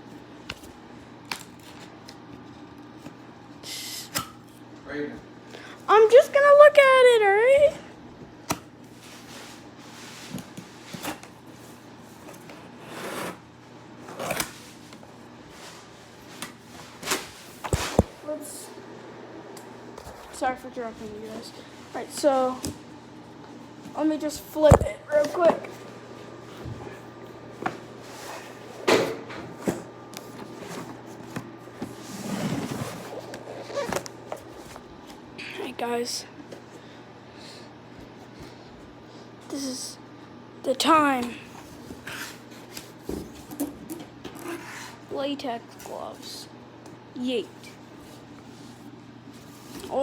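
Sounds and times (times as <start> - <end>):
cardboard scraping rustle: 12.2 - 13.4, 29.7 - 34.9.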